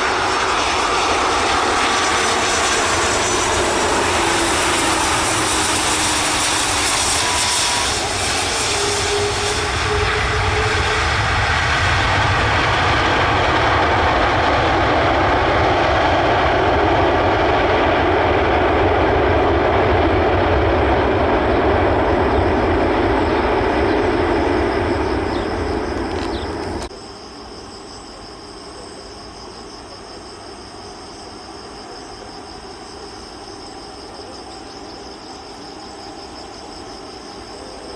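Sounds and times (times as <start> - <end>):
airliner jet engines: 0.0 - 37.9.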